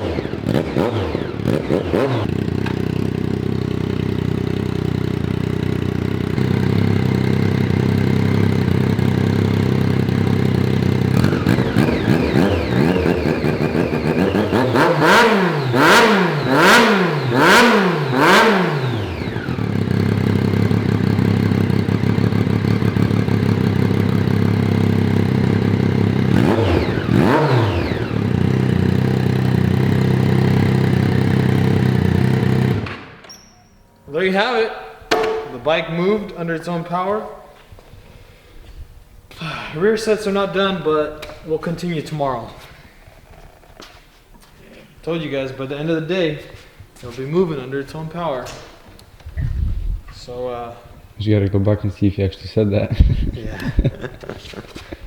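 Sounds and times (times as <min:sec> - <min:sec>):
motorcycle engine idling: 0:00.0 - 0:33.2.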